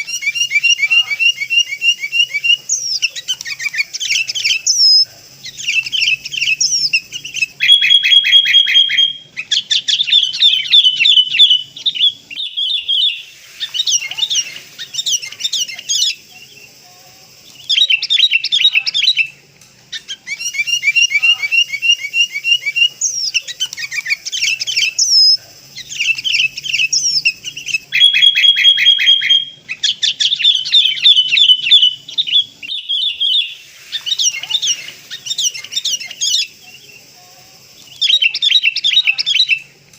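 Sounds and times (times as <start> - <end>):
recorded bird calls: 0.0 - 39.9.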